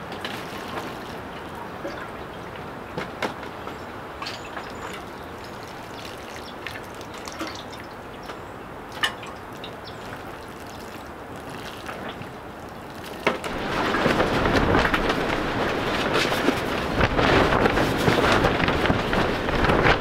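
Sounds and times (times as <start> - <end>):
greenhouse rattling in wind: 0.0 - 20.0
strong wind: 12.1 - 20.0.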